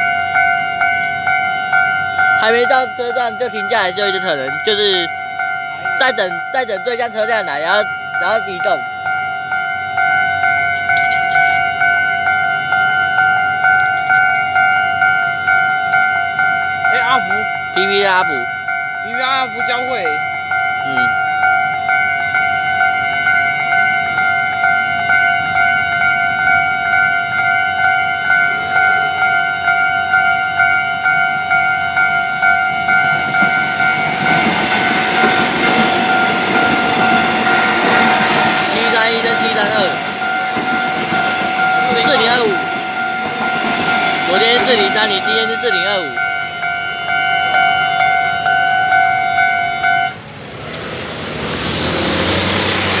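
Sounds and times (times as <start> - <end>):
level crossing bell ringing: 0.0 - 50.2
train approaching: 0.0 - 53.0
train rushing rumble: 31.3 - 53.0.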